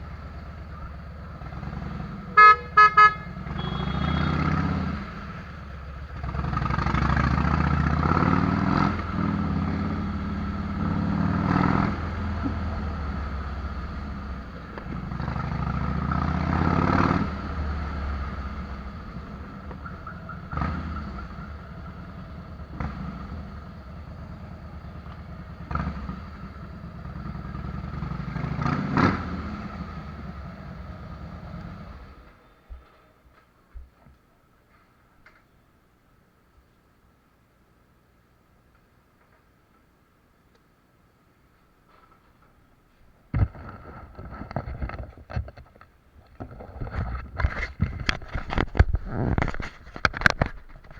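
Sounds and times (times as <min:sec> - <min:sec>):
motorcycle engine revving: 0:00.0 - 0:32.4.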